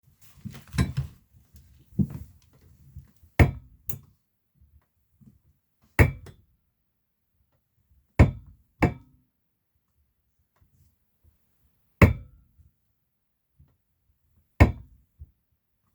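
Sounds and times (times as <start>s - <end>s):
office chair knocking and clunking: 0.4s - 1.2s, 1.8s - 2.4s.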